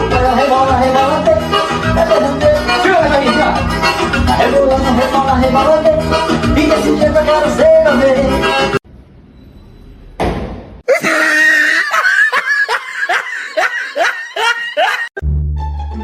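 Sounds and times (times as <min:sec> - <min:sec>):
music: 0:00.0 - 0:08.8, 0:15.2 - 0:16.0
high-pitched laughing cries: 0:10.9 - 0:15.2.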